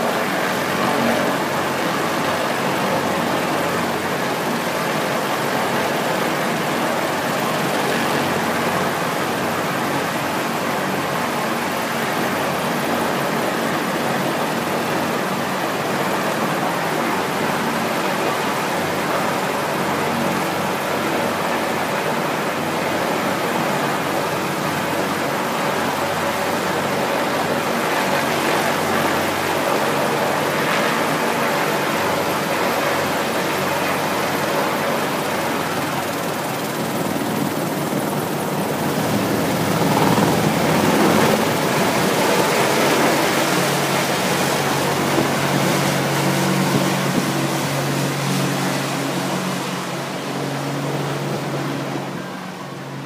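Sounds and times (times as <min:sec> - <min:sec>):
military aircraft taking off: 0:16.4 - 0:53.0.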